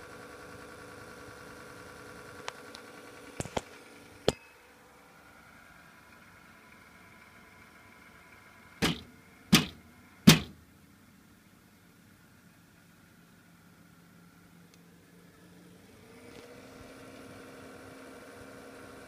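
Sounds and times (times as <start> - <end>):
power supply whine and hum: 0.0 - 11.2
sharp knocks: 8.8 - 10.6.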